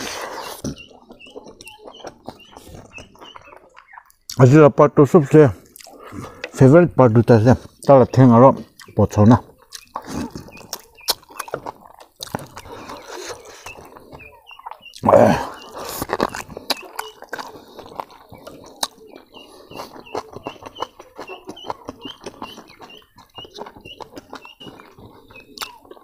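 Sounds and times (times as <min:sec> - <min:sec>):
wet chewing and lip-smacking: 0:00.0 - 0:04.6, 0:05.6 - 0:06.5, 0:07.5 - 0:26.0.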